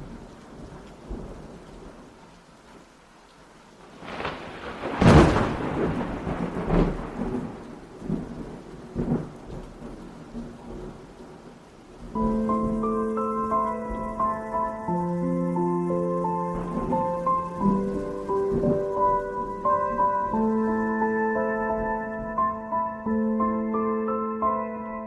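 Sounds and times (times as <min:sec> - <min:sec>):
rain falling: 0:00.0 - 0:25.0
thunder crashing and rumbling: 0:04.0 - 0:11.4, 0:12.0 - 0:23.6.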